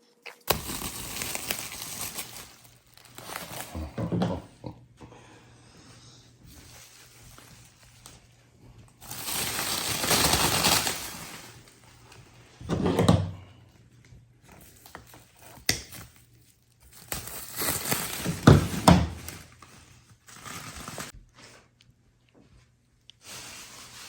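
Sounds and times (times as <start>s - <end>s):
packaging crinkling and tearing: 0.2s - 4.1s, 9.0s - 12.1s, 14.6s - 21.2s.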